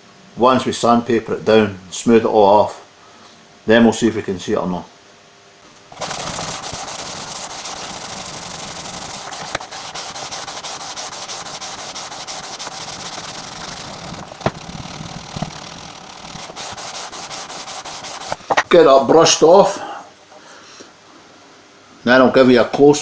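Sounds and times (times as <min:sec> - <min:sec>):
sandpaper scratching on wood: 0:05.9 - 0:18.6.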